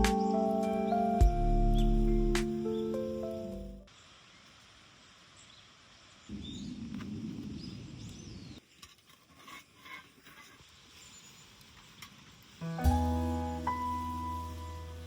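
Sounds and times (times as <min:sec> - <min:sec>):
background music: 0:00.0 - 0:03.9, 0:12.6 - 0:15.0
small birds chirping: 0:05.2 - 0:08.8, 0:10.8 - 0:15.0.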